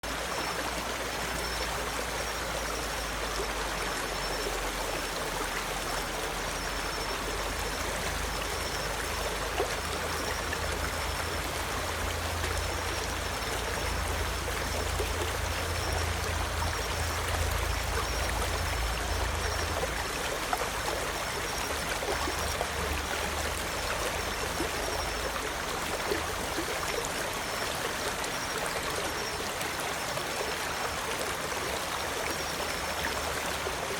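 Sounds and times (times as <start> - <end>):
stream flowing: 0.0 - 33.9.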